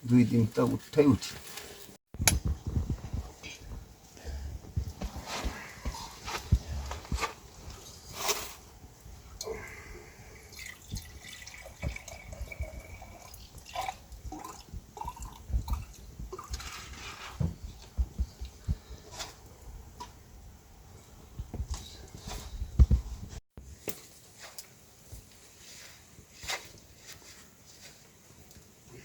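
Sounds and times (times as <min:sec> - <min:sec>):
rainwater dripping: 0:10.5 - 0:16.5.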